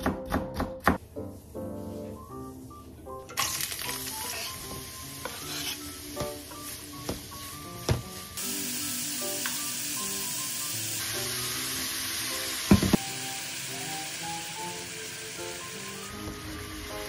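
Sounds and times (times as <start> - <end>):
vegetables sizzling in frying pan: 3.4 - 17.0.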